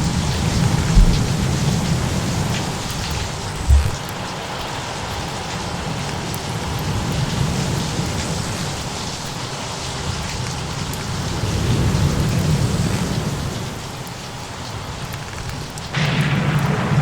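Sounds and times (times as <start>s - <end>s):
low thunder rumble: 0.0s - 4.1s
steady rain: 0.0s - 17.0s.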